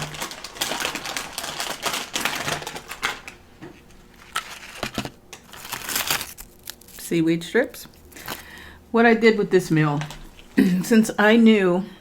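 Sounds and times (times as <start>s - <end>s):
crinkling package being opened: 0.0s - 8.6s.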